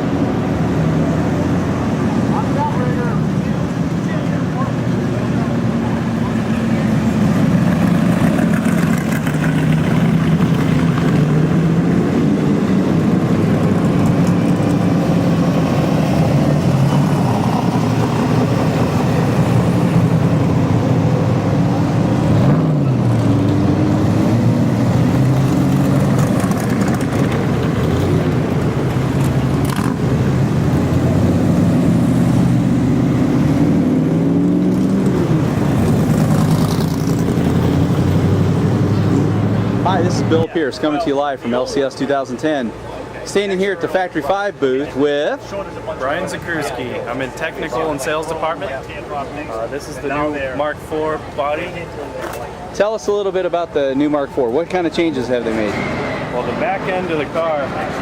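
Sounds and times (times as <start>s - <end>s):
cars driving past revving: 0.0s - 58.0s.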